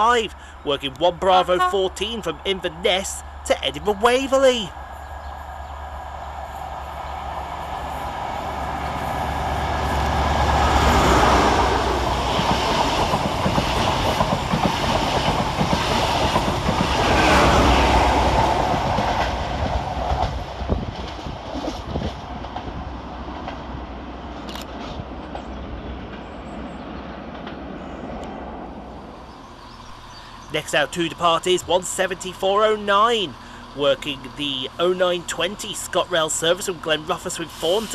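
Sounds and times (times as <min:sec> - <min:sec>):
diesel train engine rumble: 0:00.0 - 0:37.9
train wheels clattering over rail joints: 0:12.1 - 0:23.8.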